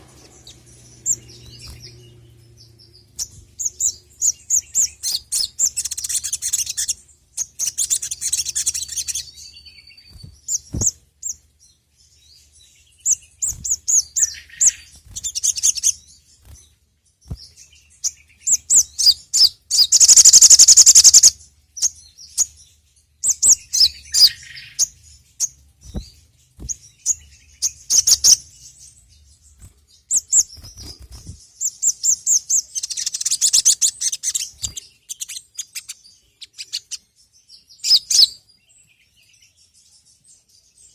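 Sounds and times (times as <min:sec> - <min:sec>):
bird chattering chirps: 0:00.0 - 0:11.4, 0:12.9 - 0:16.1, 0:17.4 - 0:22.5, 0:23.2 - 0:28.8, 0:30.1 - 0:37.0
loud fast bird trill: 0:18.0 - 0:22.5.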